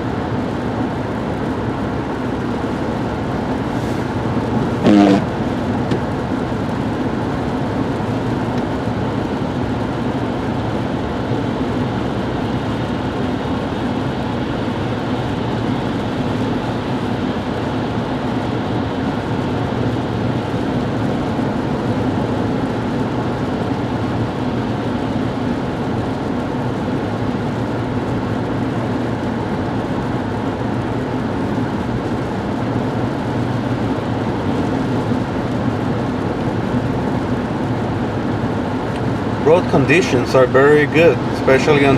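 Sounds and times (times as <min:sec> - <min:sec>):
low engine hum: 0:00.0 - 0:41.9
tyres rushing on road: 0:32.8 - 0:41.9.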